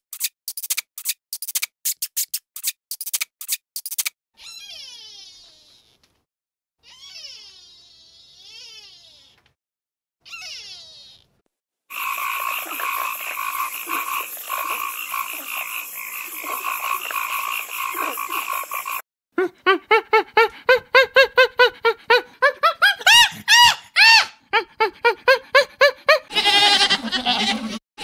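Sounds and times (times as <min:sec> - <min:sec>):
chorus of calling animals: 0:11.9 - 0:19.0
rapid rising and falling animal calls: 0:11.9 - 0:19.0.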